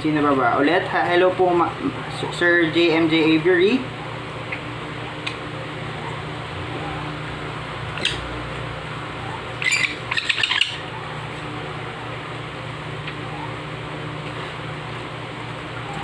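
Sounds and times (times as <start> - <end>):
steady background hum: 0.0 - 16.0
baby parrot squawking chirps: 8.0 - 8.3, 9.6 - 10.9.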